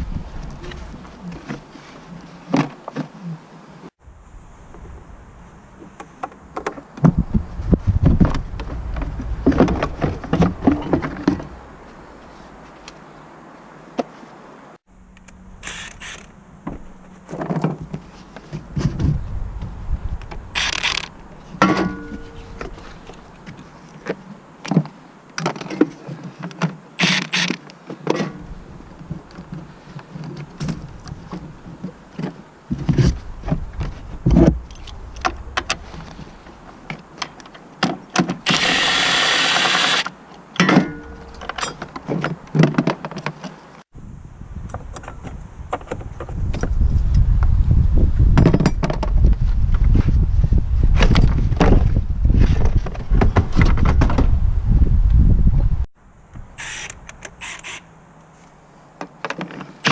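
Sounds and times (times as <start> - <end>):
hissing whirring burst: 38.5 - 40.1
metal tools clinking: 40.6 - 41.9.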